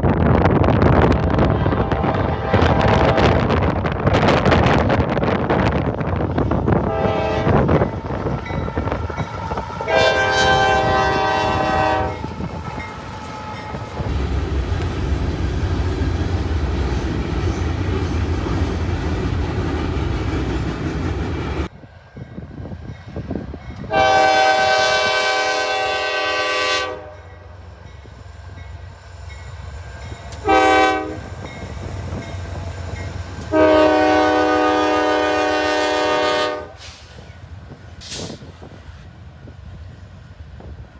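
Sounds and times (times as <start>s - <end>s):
train rumbling by: 0.0s - 40.9s
locomotive air horn blasts: 1.5s - 3.3s, 6.8s - 7.7s, 9.8s - 12.3s, 23.9s - 27.3s, 30.4s - 31.3s, 33.5s - 37.1s.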